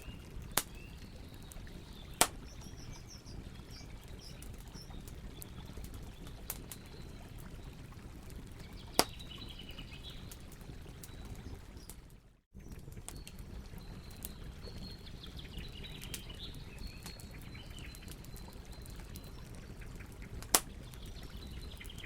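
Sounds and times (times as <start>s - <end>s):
small birds chirping: 0.0s - 12.0s, 12.6s - 22.0s
campfire crackling: 0.0s - 22.0s
sharp pops from fire: 0.4s - 3.0s, 4.2s - 6.9s, 8.9s - 9.4s, 20.4s - 21.0s.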